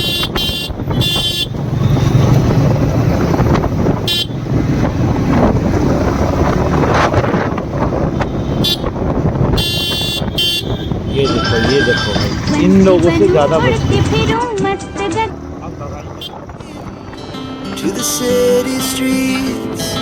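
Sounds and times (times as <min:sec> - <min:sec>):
vehicle horns tooting: 0:00.0 - 0:02.5, 0:04.0 - 0:04.7, 0:07.9 - 0:17.7
motorcycle engine running: 0:00.0 - 0:19.4
road and wind noise: 0:00.0 - 0:20.0.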